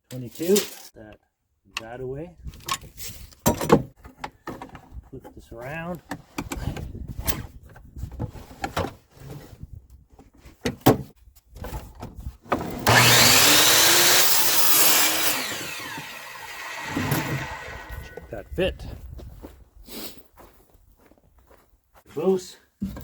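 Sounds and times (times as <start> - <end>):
power saw cutting wood: 12.6 - 18.4.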